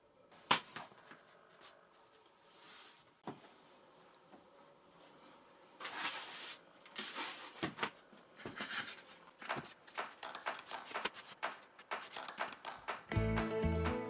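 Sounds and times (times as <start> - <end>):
clicks and taps: 9.4 - 14.0.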